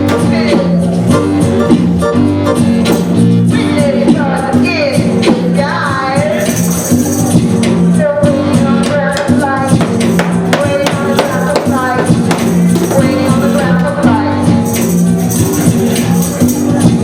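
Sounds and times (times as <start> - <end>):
person singing: 7.8 - 14.9
tambourine keeping time: 9.1 - 13.6.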